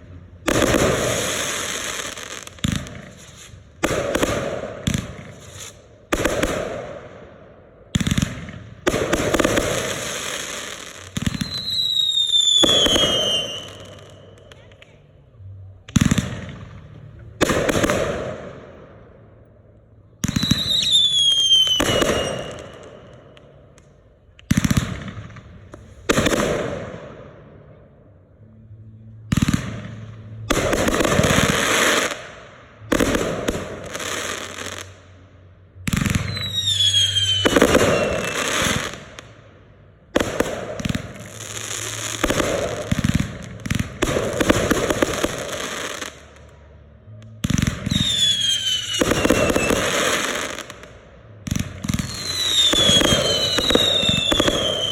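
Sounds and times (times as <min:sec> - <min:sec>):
fireworks bursting and crackling: 0:00.0 - 0:07.3, 0:07.9 - 0:15.2, 0:15.8 - 0:18.8, 0:20.2 - 0:27.3, 0:29.3 - 0:35.2, 0:35.8 - 0:39.4, 0:40.1 - 0:54.9
fireworks shells whistling: 0:05.0 - 0:06.6, 0:08.9 - 0:14.4, 0:20.2 - 0:23.4, 0:36.0 - 0:39.2, 0:47.5 - 0:50.9, 0:51.9 - 0:54.9.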